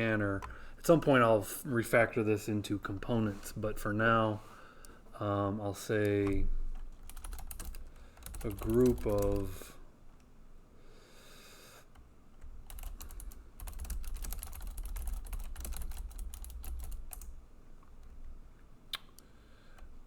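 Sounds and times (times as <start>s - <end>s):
typing on computer keyboard: 6.2s - 9.6s, 12.6s - 17.4s.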